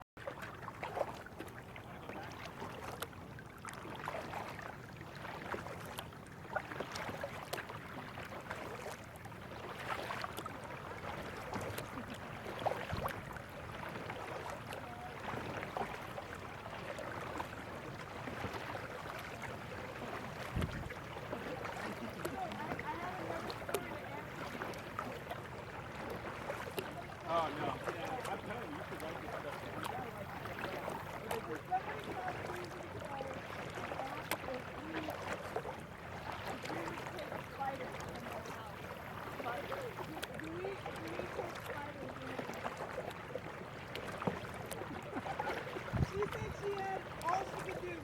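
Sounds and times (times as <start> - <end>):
water splashing from paddling: 0.2 - 48.0.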